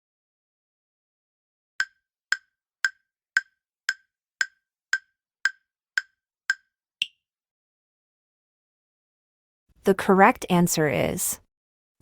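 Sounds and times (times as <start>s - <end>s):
countdown timer ticks: 1.8s - 7.2s.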